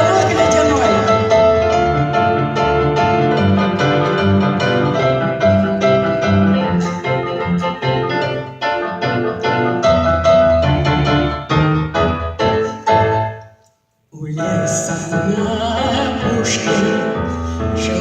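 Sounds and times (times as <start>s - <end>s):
piano playing: 0.0s - 18.0s.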